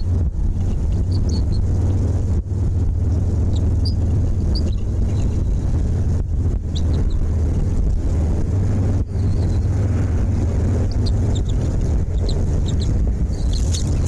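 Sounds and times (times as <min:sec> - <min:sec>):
wind buffeting microphone: 0:00.0 - 0:14.0
faint bird chirps: 0:01.0 - 0:01.7, 0:06.7 - 0:07.2, 0:10.9 - 0:14.0.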